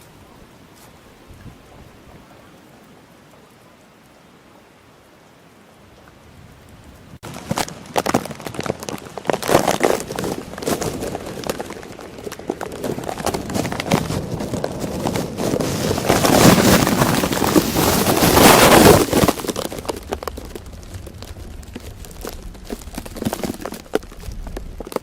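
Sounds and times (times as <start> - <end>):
storm wind: 0.0 - 3.2, 5.8 - 25.0
rough water rushing: 0.0 - 25.0.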